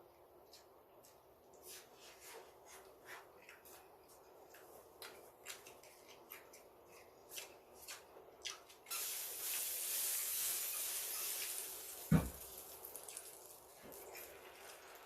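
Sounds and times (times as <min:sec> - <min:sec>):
rubbing hiss: 0:08.9 - 0:12.7.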